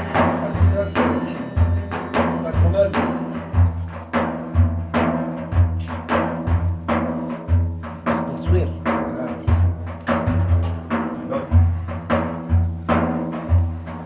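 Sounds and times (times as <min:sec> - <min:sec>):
held melodic tones: 0:00.0 - 0:07.0
hand drums beating rhythm: 0:00.0 - 0:14.0.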